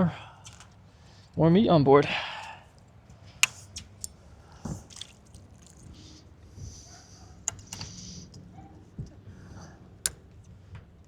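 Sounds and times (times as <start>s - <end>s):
fishing tackle clicks: 0.4s - 0.8s, 2.8s - 4.2s, 7.5s - 8.4s
water splashes and drips: 3.4s - 6.2s.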